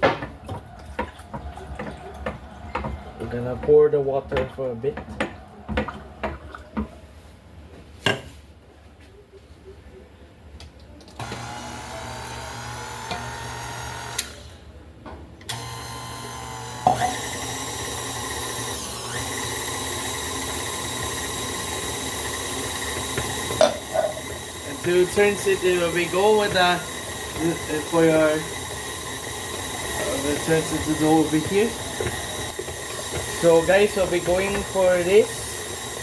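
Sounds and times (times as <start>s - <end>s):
kitchen appliance motor whine: 11.2s - 14.7s, 15.5s - 36.0s.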